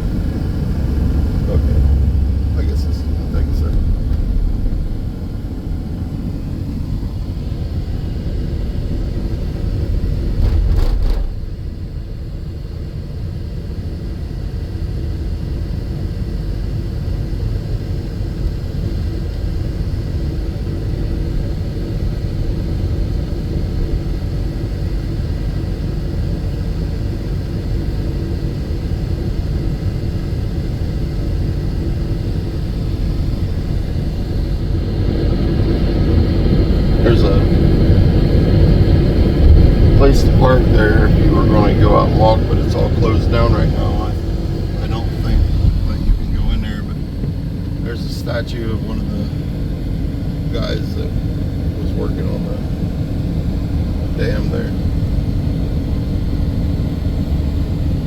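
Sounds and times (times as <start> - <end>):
car interior rumble: 0.0 - 13.0, 29.2 - 56.8.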